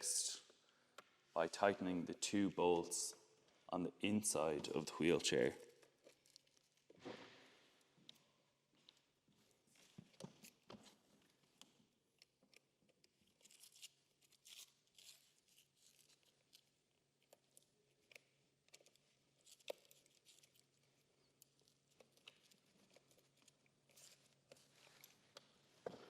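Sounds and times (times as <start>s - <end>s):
allen key clicking and scraping: 17.2s - 25.3s.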